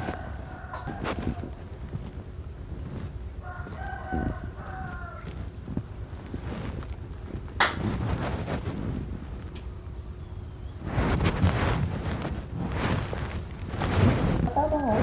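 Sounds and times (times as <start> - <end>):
rooster crowing: 0.0 - 1.6, 3.4 - 5.4.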